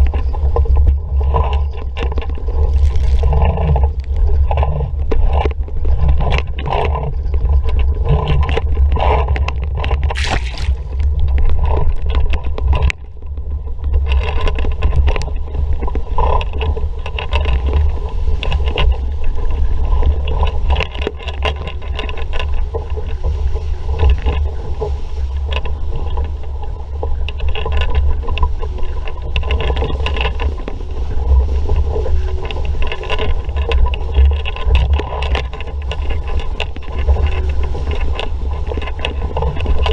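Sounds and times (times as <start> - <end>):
wind rumble on microphone: 0.0 - 39.9
water slapping against hull: 1.3 - 13.1.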